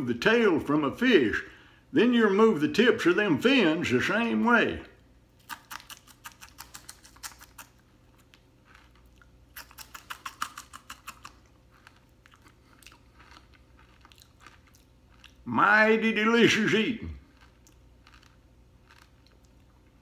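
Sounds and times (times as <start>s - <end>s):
crunching fried fish: 5.4s - 15.5s, 16.5s - 20.0s
quiet chewing: 5.4s - 15.5s, 17.1s - 20.0s.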